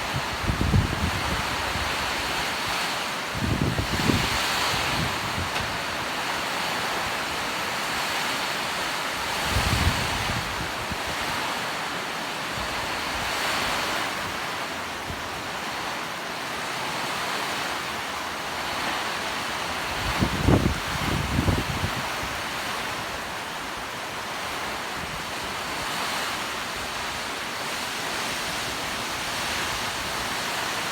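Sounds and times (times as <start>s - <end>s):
wind buffeting microphone: 0.0s - 2.6s, 3.3s - 6.2s, 9.2s - 11.4s, 19.8s - 22.7s
heavy rain pouring: 0.0s - 30.9s.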